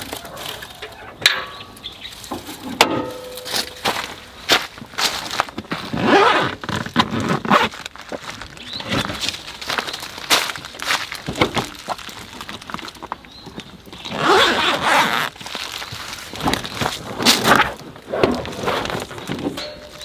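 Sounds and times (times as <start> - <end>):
gear rustling: 0.0 - 8.0, 14.1 - 20.0
camping gear clicks and knocks: 0.0 - 20.0.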